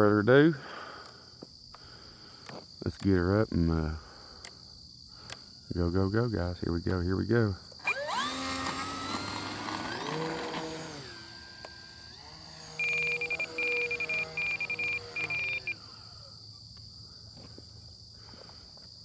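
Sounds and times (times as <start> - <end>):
electric motor and propeller whining: 7.8 - 16.6
high pulsing beeping tone: 12.7 - 15.8.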